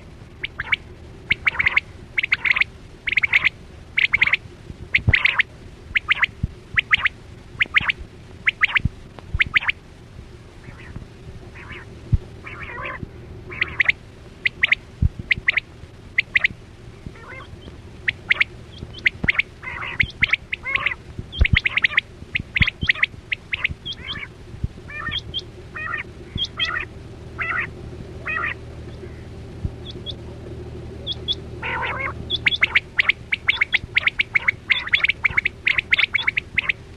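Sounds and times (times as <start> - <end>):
quail calling: 0.0 - 9.8, 10.6 - 30.2, 31.0 - 36.8
low hum: 0.0 - 36.9
low thumps: 15.0 - 15.6.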